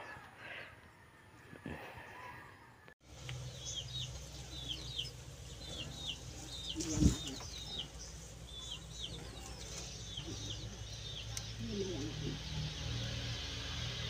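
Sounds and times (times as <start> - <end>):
low steady hum: 3.0 - 12.4
small bird chirping: 3.2 - 13.4.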